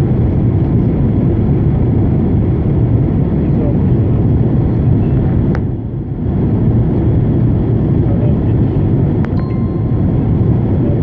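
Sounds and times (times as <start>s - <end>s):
airplane cabin engine rumble: 0.0s - 11.0s
brief steady tone: 9.3s - 11.0s.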